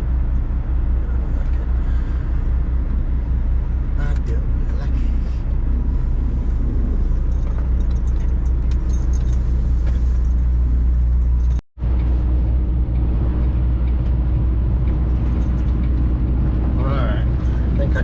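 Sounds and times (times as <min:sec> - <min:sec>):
truck engine drone: 0:00.0 - 0:18.0
light rattles and clicks: 0:06.7 - 0:18.0.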